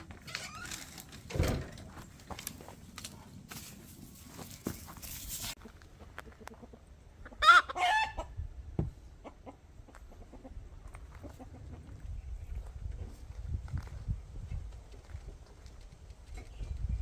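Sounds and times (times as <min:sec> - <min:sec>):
chicken calling: 0:06.5 - 0:08.3.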